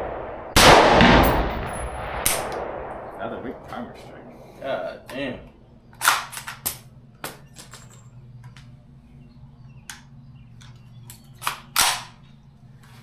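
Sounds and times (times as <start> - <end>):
gunshots: 0.0 - 4.3
low ventilation hum: 0.0 - 13.0.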